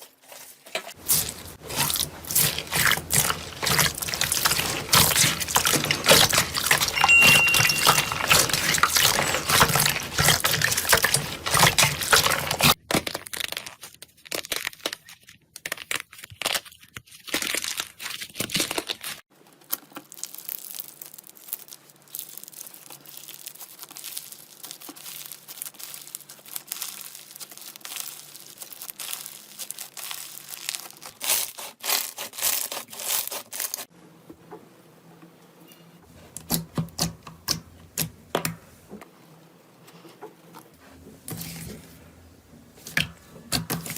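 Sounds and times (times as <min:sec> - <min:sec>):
slime crackling and popping: 0:01.0 - 0:07.0, 0:07.7 - 0:33.8.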